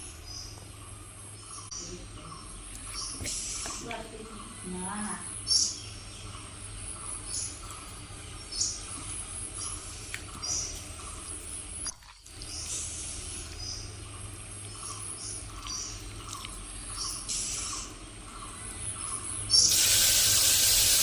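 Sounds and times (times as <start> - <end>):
high insect drone: 19.5 - 21.0.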